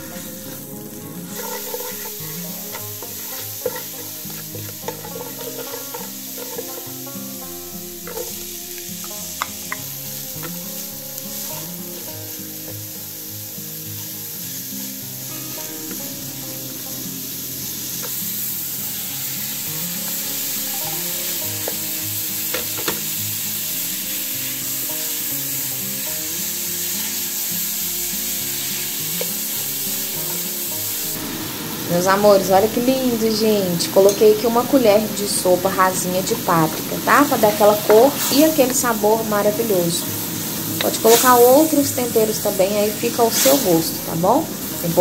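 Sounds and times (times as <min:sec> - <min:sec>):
spatula scraping pan: 0:00.0 - 0:12.9, 0:15.3 - 0:23.1, 0:34.0 - 0:45.0
meat and onion sizzling in oil: 0:00.0 - 0:45.0
utensil clicking against pan: 0:01.3 - 0:07.0, 0:08.0 - 0:10.7.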